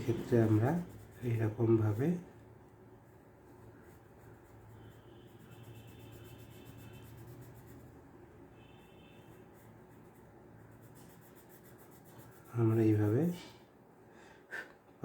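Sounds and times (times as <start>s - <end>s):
pencil scratching on paper: 0.0s - 2.3s, 3.4s - 13.2s.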